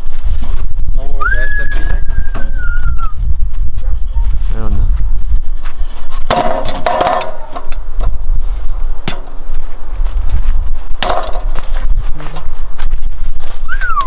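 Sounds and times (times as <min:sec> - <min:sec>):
sharp knocks and clatter: 0:06.1 - 0:08.2, 0:09.0 - 0:09.4, 0:10.9 - 0:12.6.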